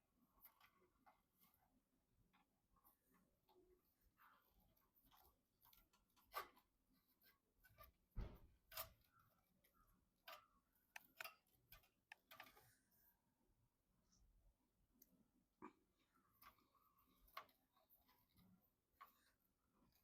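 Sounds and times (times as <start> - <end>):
computer hardware clicks and taps: 10.9 - 12.6.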